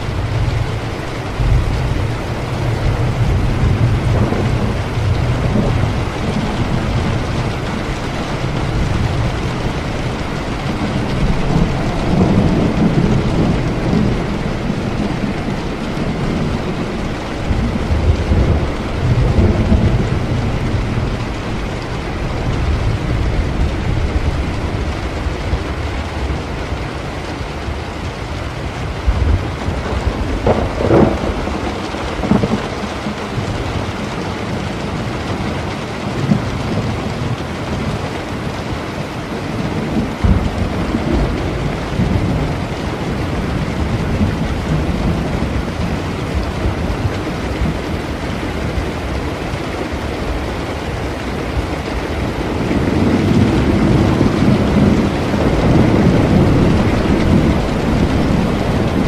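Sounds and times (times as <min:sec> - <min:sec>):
low rumbling thunder: 0:00.0 - 0:59.0
steady rain: 0:00.0 - 0:59.0
sharp thunder cracks: 0:29.1 - 0:32.8.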